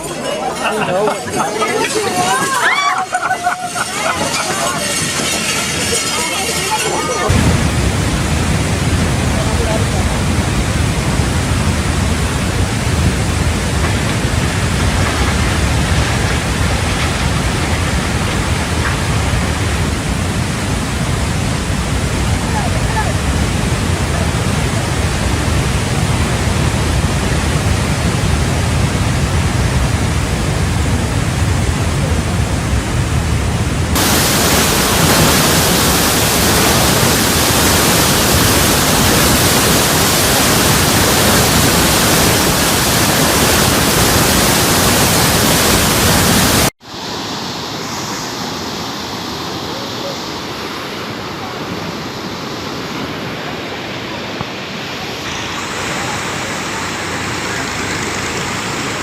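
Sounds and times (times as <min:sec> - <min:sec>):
heavy sea: 0:00.0 - 0:59.0
storm wind rushing: 0:07.2 - 0:46.7.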